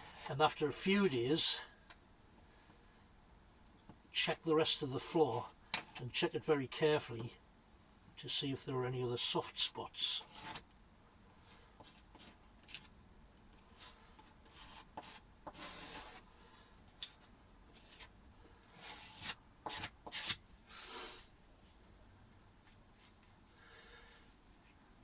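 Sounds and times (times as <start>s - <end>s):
hands rubbing and rustling materials: 21.6s - 23.4s.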